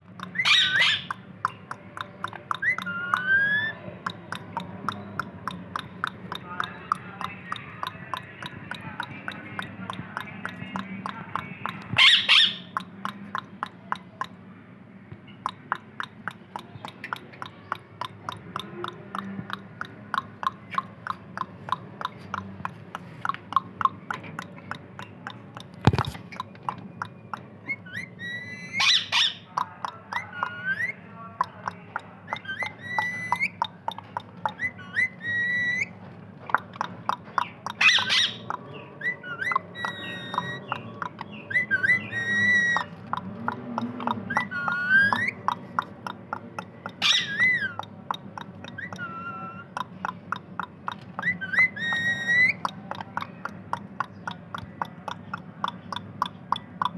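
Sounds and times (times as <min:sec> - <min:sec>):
parakeet whistling and squawking: 0:00.2 - 0:01.4, 0:02.3 - 0:06.1, 0:11.7 - 0:12.9, 0:23.5 - 0:31.0, 0:32.3 - 0:43.3, 0:44.0 - 0:54.4
rapid steady clicking: 0:01.1 - 0:12.1, 0:12.7 - 0:28.8, 0:29.5 - 0:56.9.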